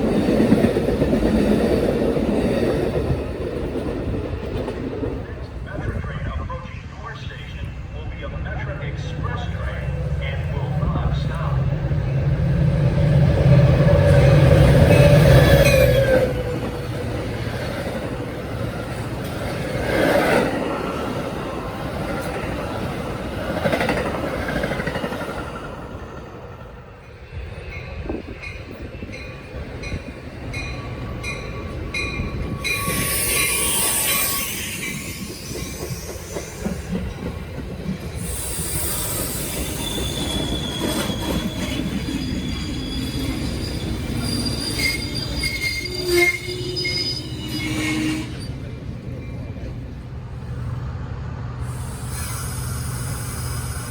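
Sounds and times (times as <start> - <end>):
rail cars rumbling by: 0.0 - 53.9
high-pitched wheel squeal: 31.5 - 37.0, 38.2 - 48.6.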